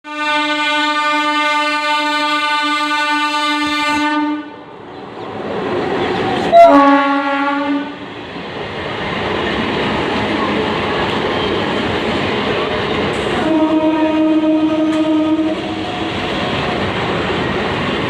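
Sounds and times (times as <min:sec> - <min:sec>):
electric train horn blast: 0:00.0 - 0:04.6, 0:06.5 - 0:08.0, 0:13.3 - 0:15.8
train running rumble: 0:04.7 - 0:18.0.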